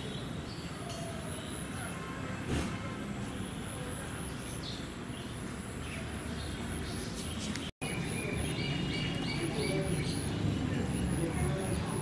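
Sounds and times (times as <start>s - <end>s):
birds chirping: 0.0s - 2.4s, 3.2s - 12.0s.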